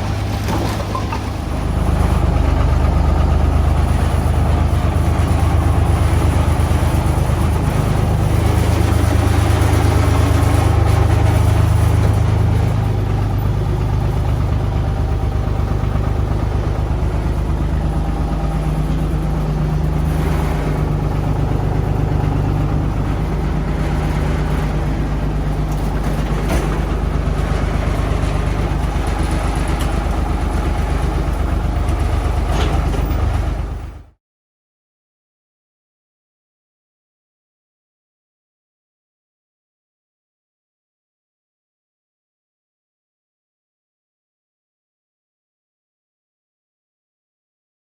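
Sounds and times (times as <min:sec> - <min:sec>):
tractor engine running: 0:00.0 - 0:34.1.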